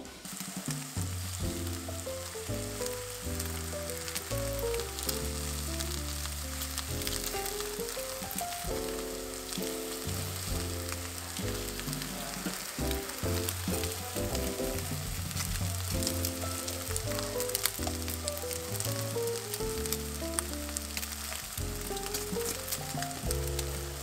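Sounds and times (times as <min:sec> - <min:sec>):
food sizzling in pans: 0:00.0 - 0:24.0
melodic background music: 0:16.0 - 0:24.0.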